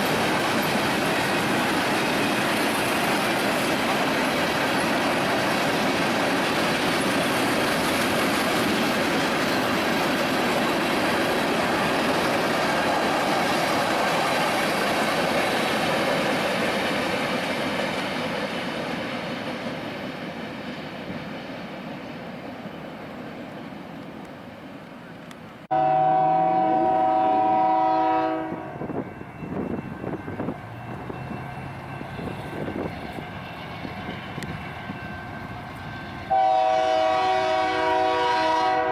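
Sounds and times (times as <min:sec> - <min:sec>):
passing train rumble: 0:00.0 - 0:38.9
locomotive air horn: 0:25.7 - 0:29.1, 0:36.3 - 0:38.9.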